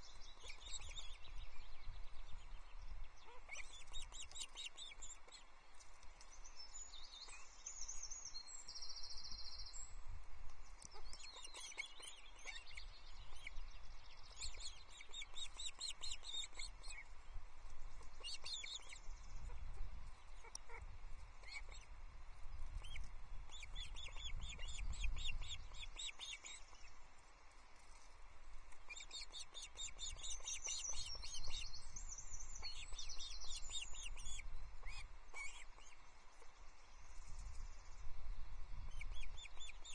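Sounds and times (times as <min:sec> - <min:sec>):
ospreys chirping: 0:22.7 - 0:26.8.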